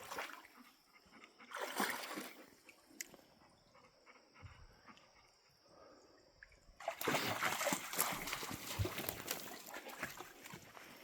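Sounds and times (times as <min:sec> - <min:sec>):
dog splashing through creek: 0:00.0 - 0:00.6, 0:01.5 - 0:02.9, 0:06.8 - 0:11.0.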